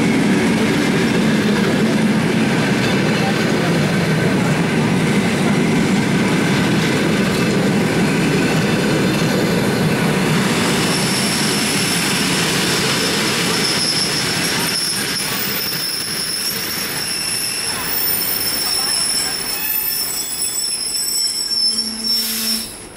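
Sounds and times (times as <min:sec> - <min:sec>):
train wheels rumbling and clattering: 0:00.0 - 0:22.0
high-pitched brake squeal: 0:10.6 - 0:12.3, 0:13.0 - 0:22.9.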